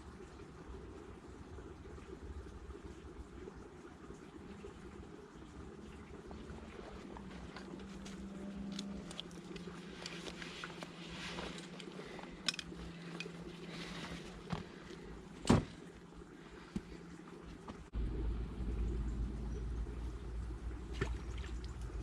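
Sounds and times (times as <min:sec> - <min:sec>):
faint low hum: 0:00.0 - 0:22.0
fishing tackle clicks and knocks: 0:07.5 - 0:13.5.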